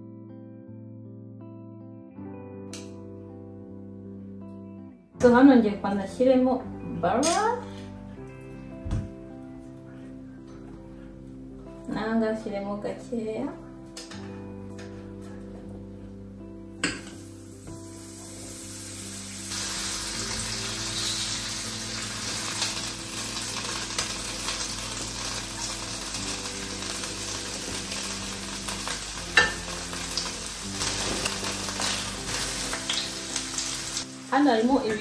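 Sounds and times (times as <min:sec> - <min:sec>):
fish and onions sizzling in pans: 0:16.9 - 0:35.0.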